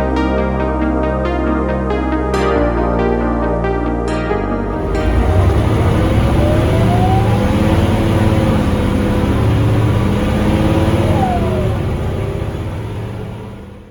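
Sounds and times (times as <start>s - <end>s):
bus diesel engine accelerating: 4.6s - 13.9s
rising gearbox whine: 4.7s - 13.9s.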